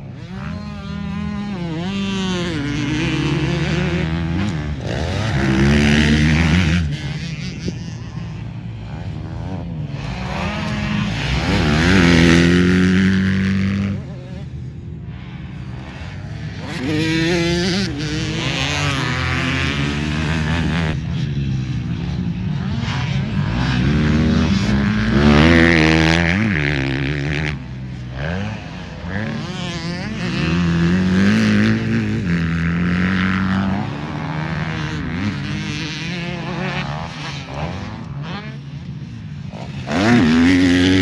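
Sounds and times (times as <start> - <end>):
motocross motorcycles revving: 0.0 - 41.0.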